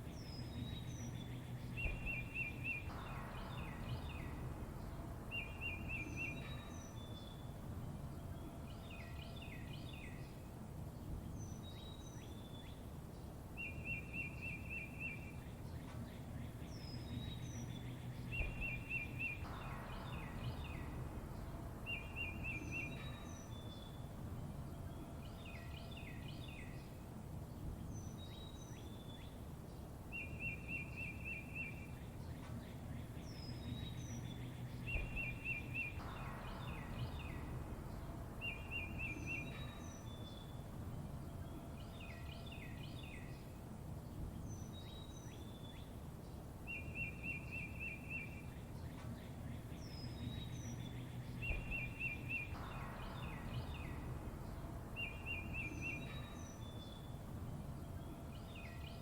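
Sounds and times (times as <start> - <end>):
low background rumble: 0.0 - 59.0
songbirds chirping and calling: 0.0 - 59.0
bird trill: 0.3 - 7.6, 16.9 - 26.8, 30.2 - 43.5, 46.7 - 59.0.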